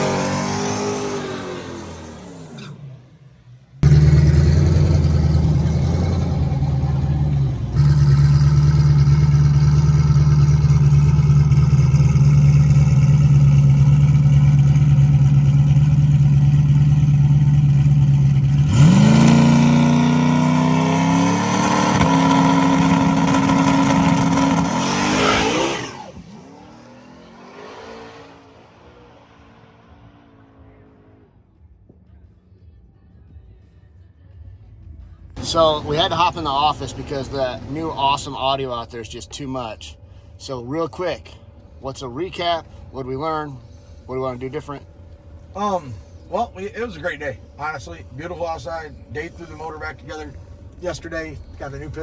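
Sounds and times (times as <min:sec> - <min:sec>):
drag car engine revving: 0:00.0 - 0:31.4, 0:35.4 - 0:39.1.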